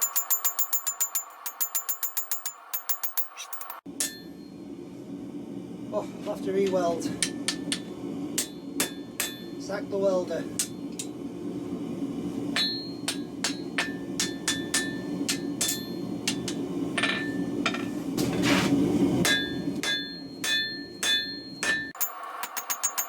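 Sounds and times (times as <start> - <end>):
hammer striking steel on anvil: 0.0 - 4.6, 7.1 - 9.6, 10.4 - 11.1, 12.6 - 17.9, 19.2 - 23.0
gas forge burner rushing: 0.0 - 23.0.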